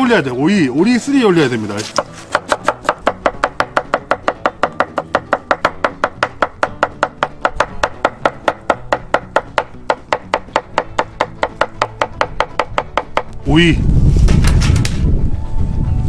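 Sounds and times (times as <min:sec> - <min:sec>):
knife slicing on cutting board: 0:01.7 - 0:02.9.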